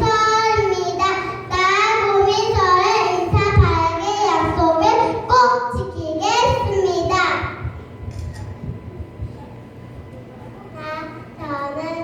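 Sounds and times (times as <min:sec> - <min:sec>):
young child singing: 0:00.0 - 0:07.7.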